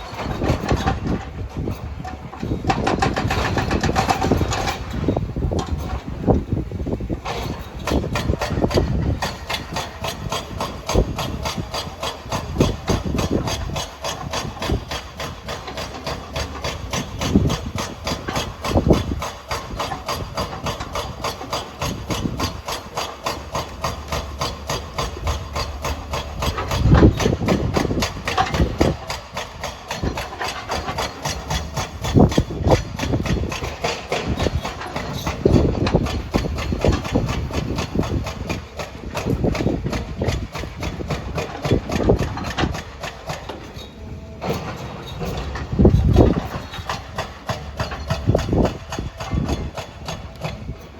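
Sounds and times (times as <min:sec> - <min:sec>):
construction machine knocking: 0:00.0 - 0:50.9.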